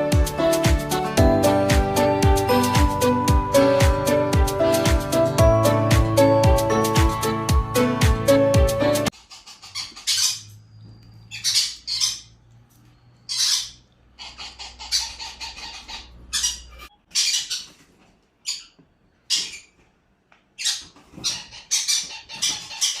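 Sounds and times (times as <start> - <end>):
music: 0.0 - 9.1
parakeet squawks: 9.1 - 10.6, 11.2 - 12.4, 13.2 - 17.8, 18.4 - 19.8, 20.6 - 23.0.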